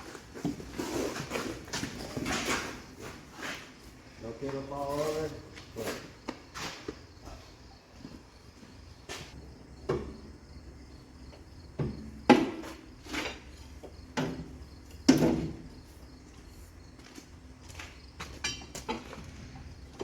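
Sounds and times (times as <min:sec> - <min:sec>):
insects chirring: 0:02.0 - 0:20.0
metal clanks and knocks: 0:18.2 - 0:20.0.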